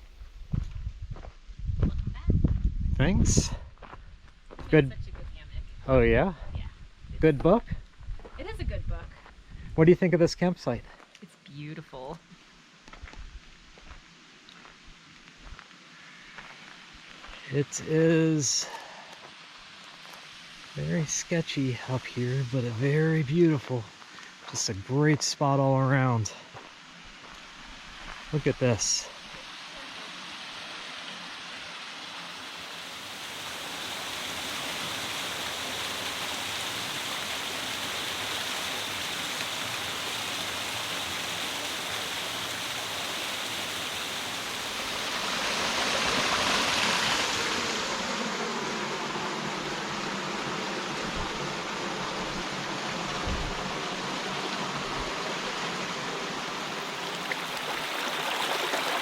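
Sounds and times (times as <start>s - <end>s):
rushing water: 13.4s - 59.0s.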